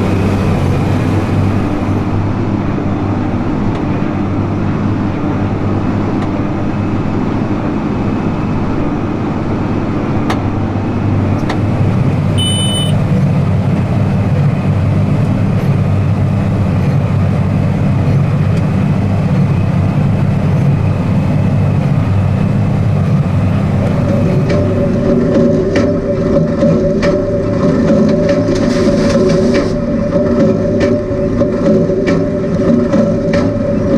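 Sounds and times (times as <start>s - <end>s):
tractor running under load: 0.0s - 33.9s
brief high beep: 12.4s - 13.0s.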